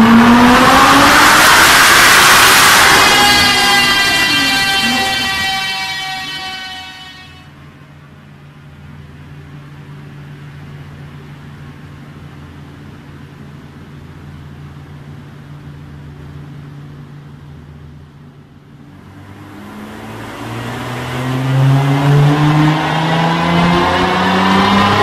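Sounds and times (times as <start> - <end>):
car engine revving on dyno: 0.0 - 7.3, 18.9 - 25.0
steady low hum: 2.6 - 24.8.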